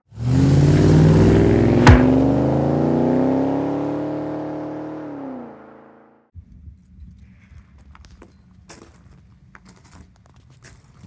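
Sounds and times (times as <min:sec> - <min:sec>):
car engine revving: 0:00.1 - 0:06.1.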